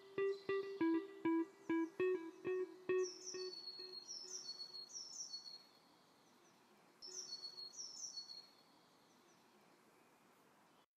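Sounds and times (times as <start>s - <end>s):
plucked guitar note: 0.0s - 4.0s
bird chirping: 0.0s - 9.4s.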